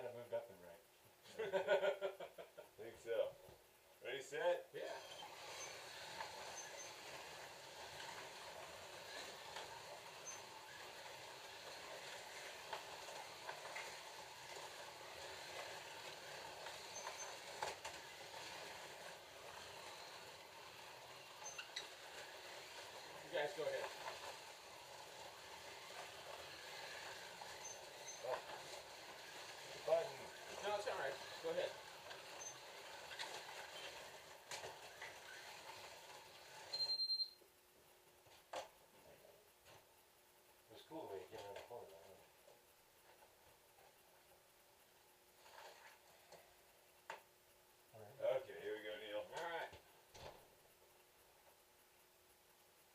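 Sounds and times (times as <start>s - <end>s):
slot car motors whirring: 5.0s - 36.9s.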